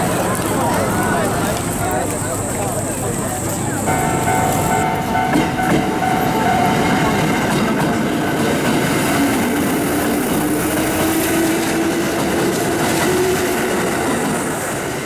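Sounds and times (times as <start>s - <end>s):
wheels rushing on rail: 0.0s - 15.0s
electric train passing: 1.6s - 15.0s.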